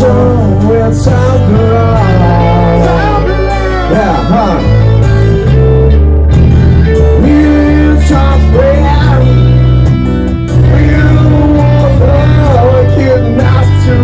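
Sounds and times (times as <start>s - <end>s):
electric guitar: 0.0s - 14.0s
steady bass line: 0.0s - 14.0s.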